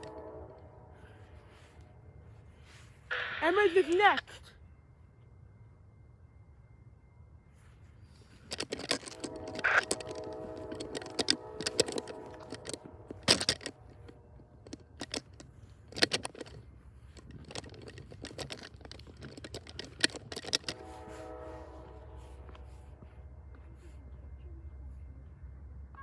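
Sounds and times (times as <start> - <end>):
distant train horn: 0.0 - 4.0, 9.0 - 14.8, 20.5 - 24.8
recording device being handled: 8.3 - 21.1.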